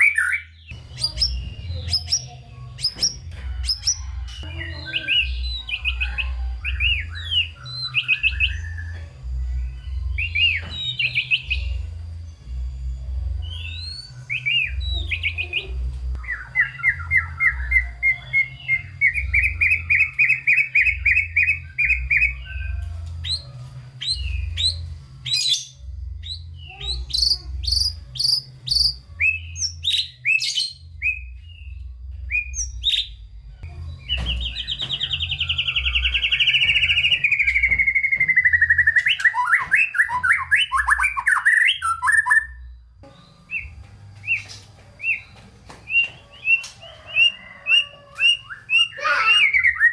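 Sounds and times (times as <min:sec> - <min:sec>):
songbird singing: 0:00.0 - 0:49.9.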